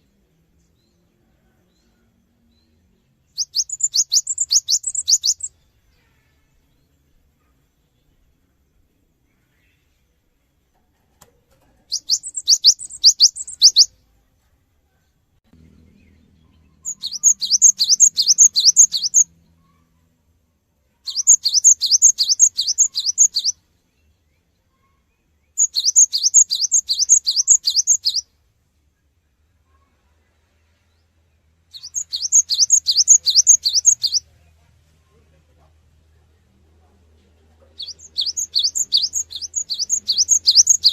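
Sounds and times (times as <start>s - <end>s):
bird singing rolling high notes: 3.3s - 5.6s, 11.9s - 14.0s, 15.6s - 19.3s, 21.1s - 23.6s, 25.5s - 28.3s, 31.7s - 34.2s, 37.8s - 40.9s.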